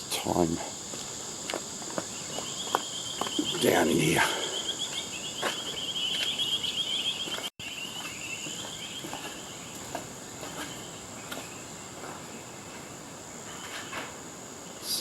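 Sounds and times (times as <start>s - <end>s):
high-pitched insect drone: 0.0s - 7.4s
insects trilling chirp: 0.0s - 15.0s.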